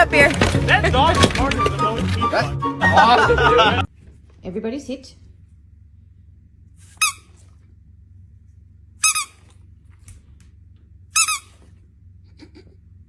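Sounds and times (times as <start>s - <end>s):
faint low hum: 2.9s - 13.0s
short high-pitched squeaks: 6.8s - 7.4s, 9.0s - 9.5s, 11.2s - 11.7s.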